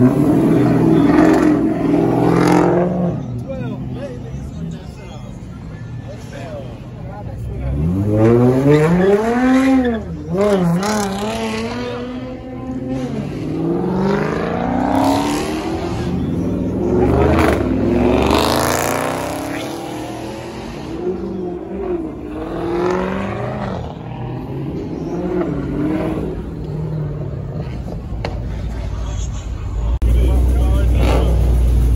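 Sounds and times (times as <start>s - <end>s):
car engines revving hard: 0.0s - 31.9s.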